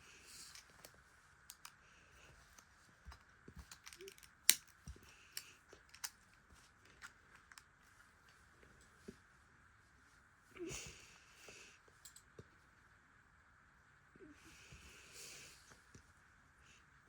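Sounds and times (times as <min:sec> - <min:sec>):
plastic bricks clicking together: 0:03.6 - 0:04.8.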